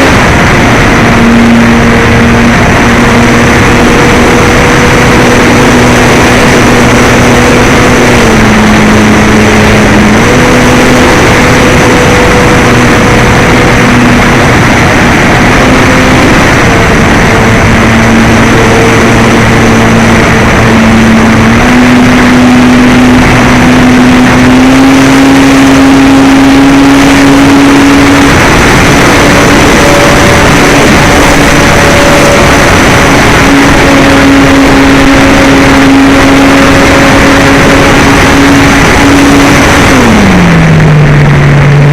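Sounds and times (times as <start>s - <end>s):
model airplane motor humming: 0.0s - 41.0s
heavy wind noise: 0.0s - 41.9s.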